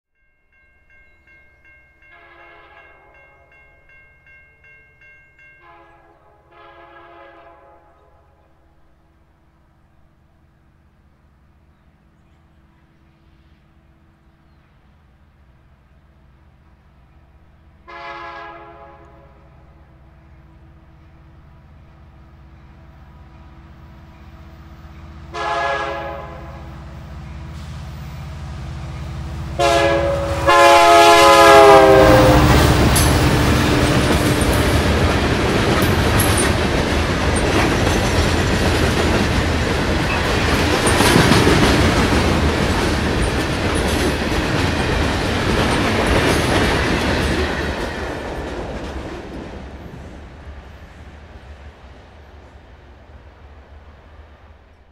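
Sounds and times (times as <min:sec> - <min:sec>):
diesel locomotive engine humming: 0:00.2 - 0:54.9
multi-note train horn blasts: 0:02.0 - 0:03.6, 0:05.6 - 0:09.0, 0:17.8 - 0:20.9, 0:25.3 - 0:27.8, 0:29.4 - 0:35.9
wheels clattering over rail joints: 0:32.8 - 0:49.8.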